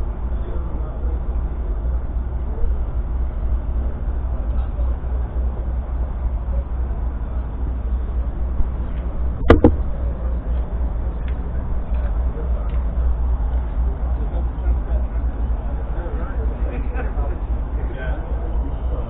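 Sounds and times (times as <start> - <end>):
low rumble of machinery hall: 0.0 - 19.0
faint voices: 0.2 - 19.0
sharp double knock: 9.4 - 9.9.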